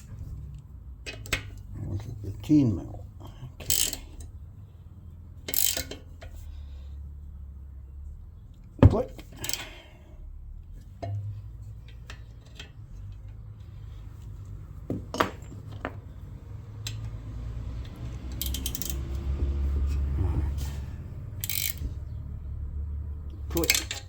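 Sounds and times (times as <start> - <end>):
tools and metal parts clinking: 3.6 - 4.3, 5.4 - 6.5, 8.8 - 9.8, 10.9 - 14.0, 14.8 - 17.2, 17.8 - 22.2, 23.3 - 24.0
low handling rumble: 10.2 - 24.0
short metallic rattle: 18.3 - 19.8, 23.5 - 24.0.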